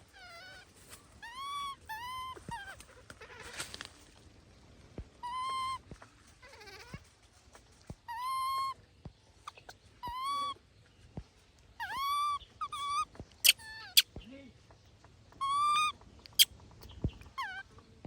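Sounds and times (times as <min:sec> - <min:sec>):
wavering monkey call: 0:00.0 - 0:02.8, 0:05.2 - 0:05.8, 0:08.1 - 0:08.8, 0:10.0 - 0:10.6, 0:11.8 - 0:14.1, 0:15.4 - 0:16.5
baby monkey cooing: 0:00.0 - 0:03.5, 0:05.2 - 0:07.0, 0:08.1 - 0:08.8, 0:09.5 - 0:10.6, 0:11.8 - 0:14.1, 0:15.4 - 0:16.5, 0:17.2 - 0:17.8.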